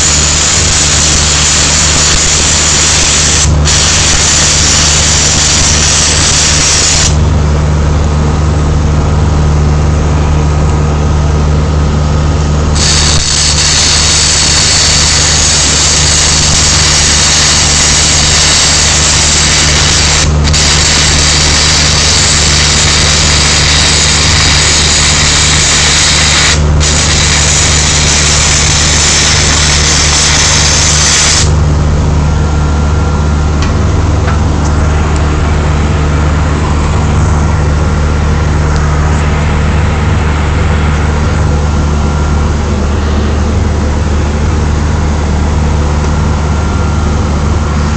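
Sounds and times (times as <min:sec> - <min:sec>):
welding arc crackling and hissing: 0:00.0 - 0:07.2, 0:12.7 - 0:31.6
steady engine hum: 0:00.0 - 0:47.9.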